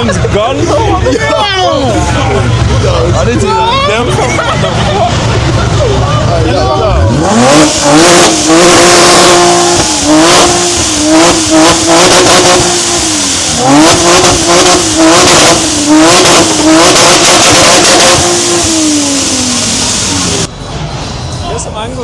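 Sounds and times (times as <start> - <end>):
car engine revving hard: 5.2 - 20.5.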